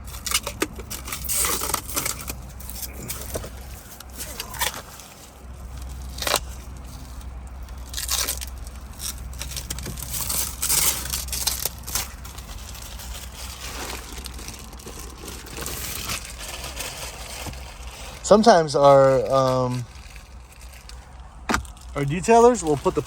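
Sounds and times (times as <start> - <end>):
plastic film peeling and rustling: 0.0 - 23.0
steady low hum: 0.0 - 23.0.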